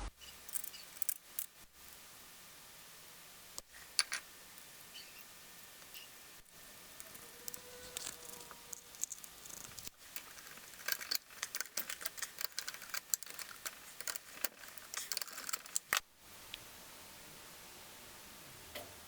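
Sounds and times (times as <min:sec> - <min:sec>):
metal tools clinking: 0:07.1 - 0:16.0.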